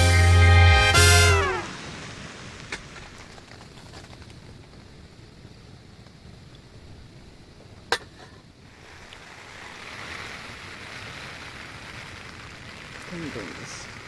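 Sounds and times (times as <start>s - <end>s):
steady hiss: 0.0s - 3.9s, 8.4s - 14.0s.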